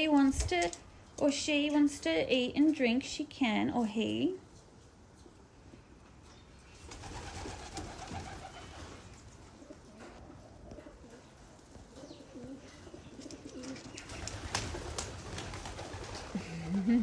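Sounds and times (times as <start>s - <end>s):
pigeons cooing: 6.9s - 17.0s.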